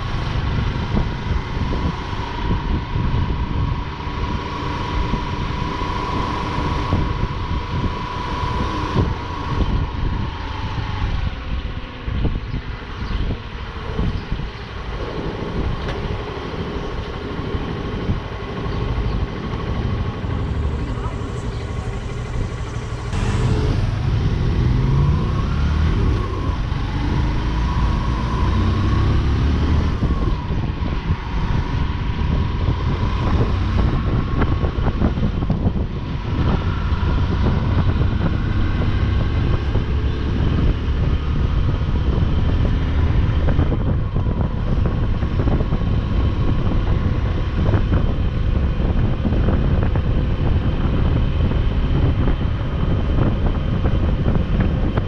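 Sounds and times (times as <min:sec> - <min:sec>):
motorcycle engine running: 0:00.0 - 0:27.4
wind buffeting microphone: 0:00.0 - 0:55.0.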